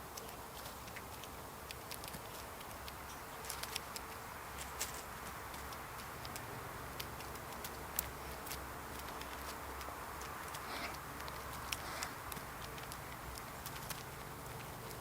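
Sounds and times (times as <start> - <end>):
steady outdoor hiss: 0.0 - 15.0
sharp little clicks and taps: 0.1 - 15.0.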